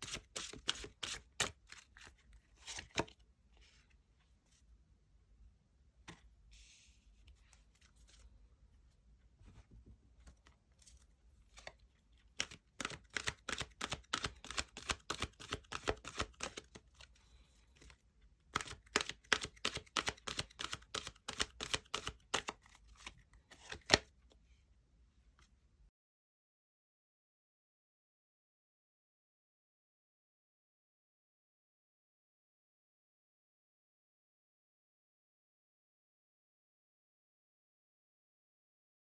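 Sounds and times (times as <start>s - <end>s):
cards slapping while shuffled: 0.0s - 2.0s, 2.6s - 3.1s, 12.4s - 16.8s, 18.6s - 24.1s
cards rustling: 0.0s - 3.2s, 10.8s - 17.2s, 18.6s - 24.1s.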